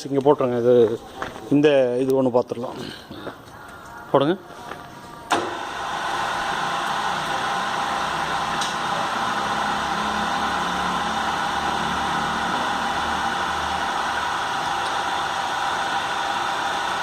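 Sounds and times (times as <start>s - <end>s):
motorised drive humming and whirring: 4.9s - 17.0s.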